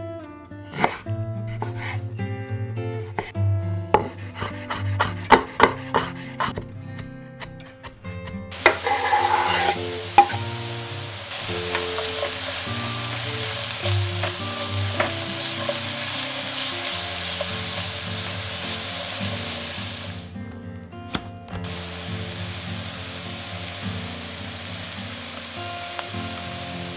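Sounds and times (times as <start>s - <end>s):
vegetables sizzling in oil: 8.5s - 20.4s, 21.6s - 26.9s.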